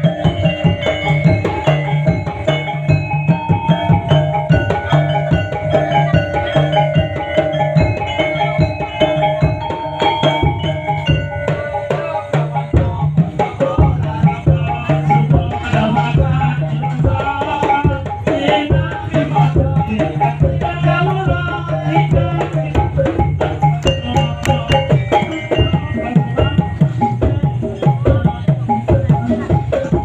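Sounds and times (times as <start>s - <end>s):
fast percussion drumming: 0.0s - 30.0s
low pulsing beat: 0.0s - 30.0s
pitched ringing tones: 0.0s - 30.0s.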